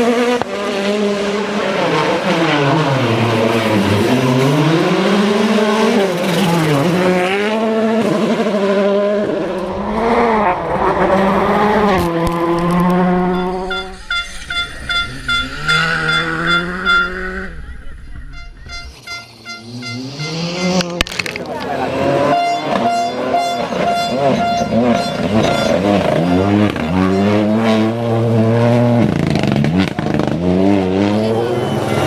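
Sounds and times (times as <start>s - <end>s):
rally car engine revving: 0.0s - 32.0s
short high beeps: 13.1s - 20.8s, 21.9s - 28.1s.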